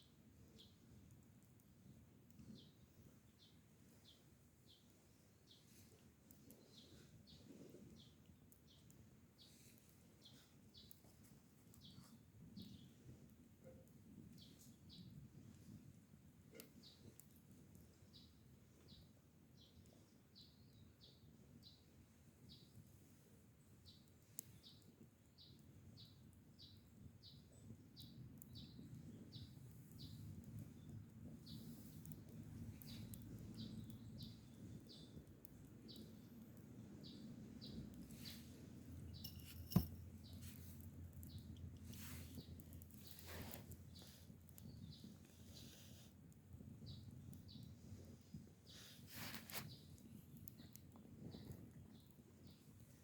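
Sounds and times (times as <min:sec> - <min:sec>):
small bird chirping: 0:23.8 - 0:36.3, 0:39.1 - 0:45.9, 0:48.7 - 0:52.7.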